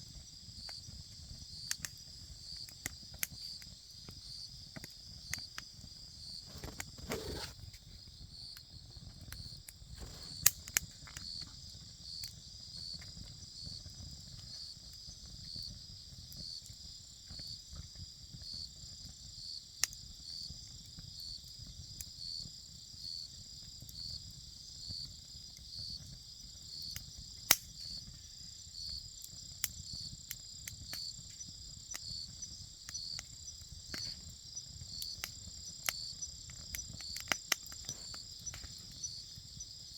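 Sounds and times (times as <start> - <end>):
campfire crackling and popping: 0.0 - 8.0, 9.1 - 15.4, 25.4 - 39.9
insects chirring: 0.0 - 13.7, 24.0 - 39.9.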